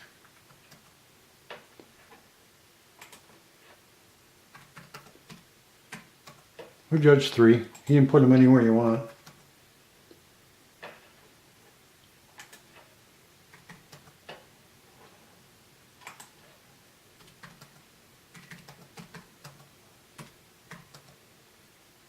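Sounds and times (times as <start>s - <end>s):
keyboard keystrokes: 4.5s - 6.4s, 17.2s - 21.2s.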